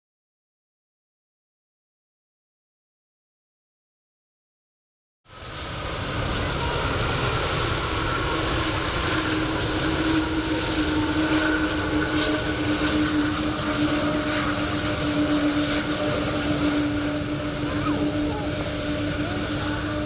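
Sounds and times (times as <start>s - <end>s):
airliner engines running: 5.3s - 20.0s.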